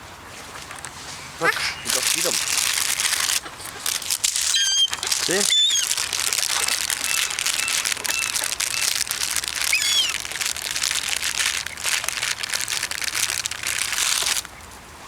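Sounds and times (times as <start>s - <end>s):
plastic bag crinkling: 0.6s - 14.5s
short high chirps: 4.4s - 6.1s, 9.7s - 10.2s.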